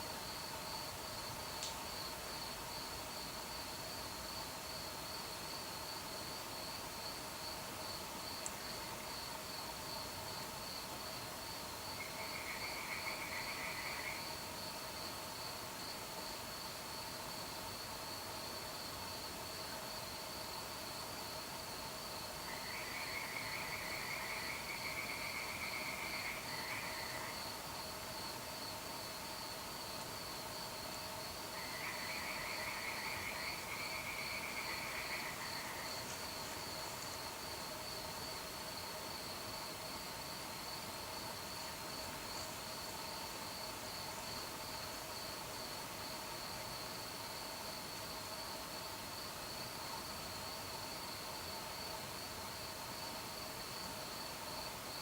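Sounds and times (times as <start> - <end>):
crickets chirping: 0.0 - 55.0
low insect tones: 0.0 - 55.0.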